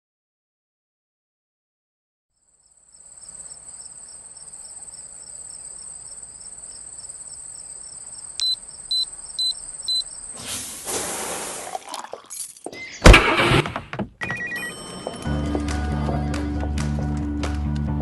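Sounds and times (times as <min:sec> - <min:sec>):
crickets chirring: 0:02.4 - 0:11.8
high electronic beeps: 0:08.4 - 0:10.1.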